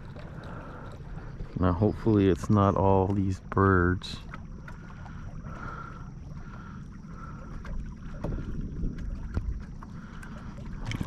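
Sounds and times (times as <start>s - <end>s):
water around kayak: 0.0s - 11.0s
wind rumble on microphone: 5.5s - 11.0s.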